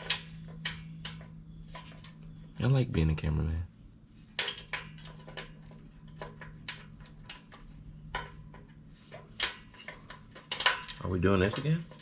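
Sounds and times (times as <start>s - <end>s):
hand tools clicking on metal: 0.0s - 2.3s, 4.4s - 12.0s
faint high hum: 0.0s - 12.0s.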